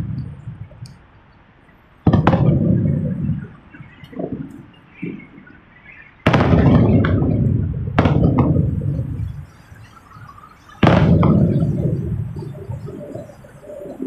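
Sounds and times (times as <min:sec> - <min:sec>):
firework shells booming: 0:02.0 - 0:05.4, 0:06.2 - 0:14.0.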